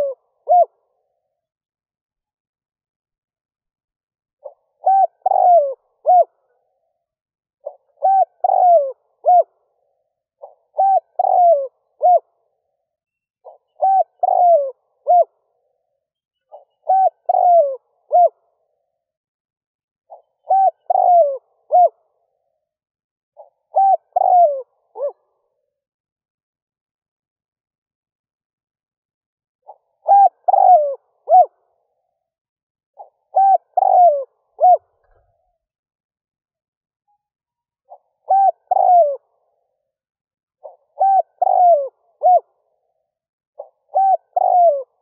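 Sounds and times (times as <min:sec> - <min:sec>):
dove cooing: 0:00.0 - 0:01.1, 0:04.4 - 0:06.7, 0:07.6 - 0:12.6, 0:13.4 - 0:15.6, 0:16.5 - 0:18.7, 0:20.1 - 0:22.1, 0:23.4 - 0:25.3, 0:29.7 - 0:31.8, 0:33.0 - 0:35.4, 0:37.9 - 0:39.6, 0:40.6 - 0:42.7, 0:43.6 - 0:45.0.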